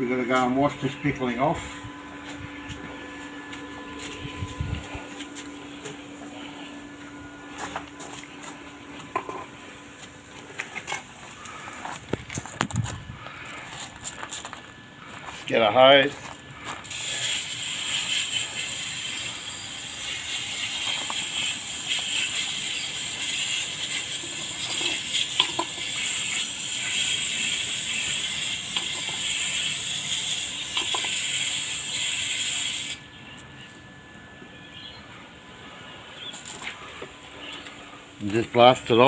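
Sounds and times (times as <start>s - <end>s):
hose spraying onto steel: 16.8s - 33.0s.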